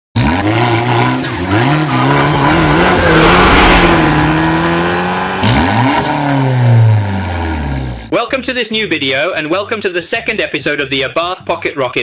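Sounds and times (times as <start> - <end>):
car engine revving: 0.2 - 8.1.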